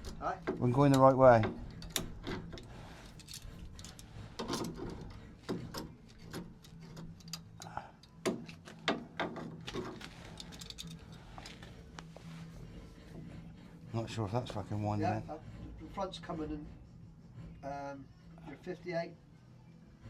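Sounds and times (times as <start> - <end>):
metal clicks of hand tools: 0.0 - 8.6
low background hum: 0.0 - 20.0.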